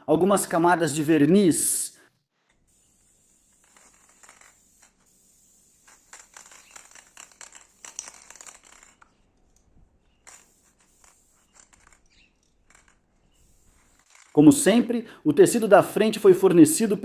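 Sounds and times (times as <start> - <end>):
hands working with tools: 2.4 - 14.6.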